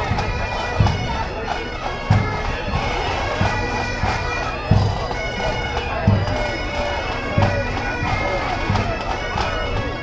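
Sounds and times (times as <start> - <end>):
bagpipes playing: 0.0 - 10.0.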